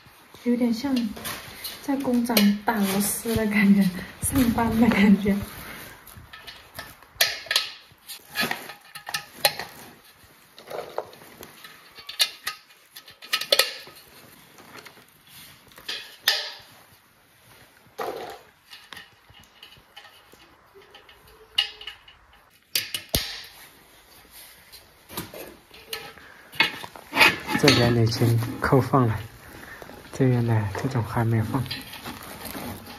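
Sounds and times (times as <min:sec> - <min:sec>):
metal parts clicking and clinking: 0:04.1 - 0:10.0, 0:10.6 - 0:15.0, 0:15.7 - 0:16.8, 0:18.0 - 0:23.6, 0:25.2 - 0:28.8.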